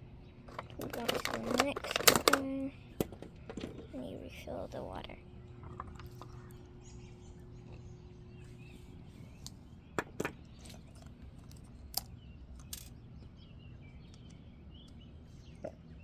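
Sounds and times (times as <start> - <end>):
steady low hum: 0.0 - 16.0
plastic toy parts clicking: 0.5 - 3.9, 10.0 - 13.0.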